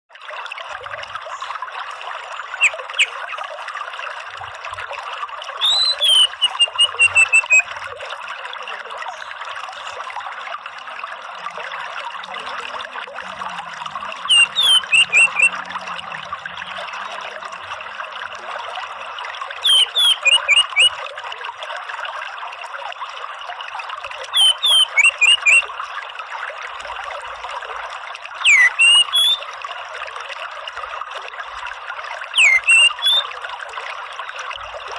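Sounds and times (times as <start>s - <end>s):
running water trickling: 0.1s - 34.9s
thrush calling: 2.4s - 3.2s, 5.6s - 7.7s, 14.2s - 15.7s, 19.6s - 21.0s, 24.3s - 25.6s, 28.4s - 29.4s, 32.4s - 33.3s.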